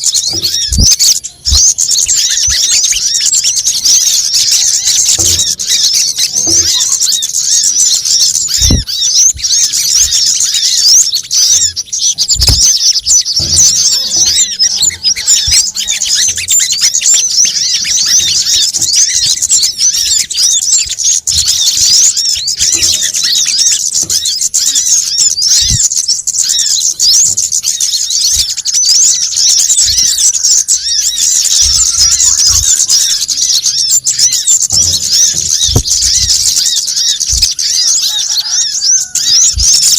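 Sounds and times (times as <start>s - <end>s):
small birds chattering: 0.0s - 39.9s
soft low thumps: 0.3s - 3.1s, 8.5s - 10.2s, 12.1s - 13.9s, 34.7s - 36.7s.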